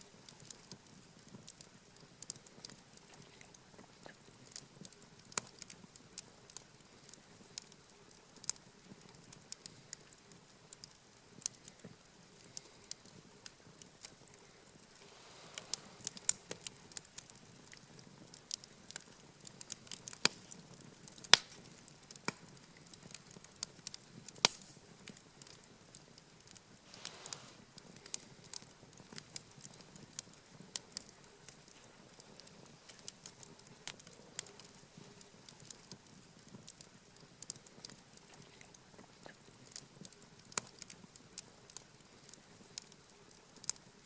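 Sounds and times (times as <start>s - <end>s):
campfire crackling: 0.0s - 44.0s
sharp pops of fire: 15.1s - 25.6s.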